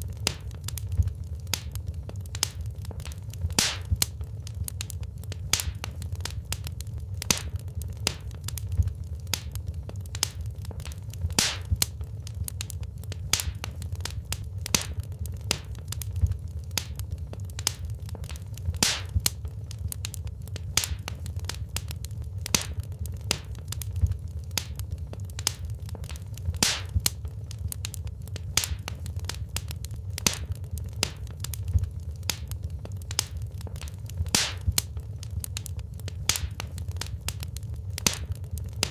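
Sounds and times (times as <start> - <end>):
fire crackling and popping: 0.0 - 38.9
low rumble of fire: 0.0 - 38.9.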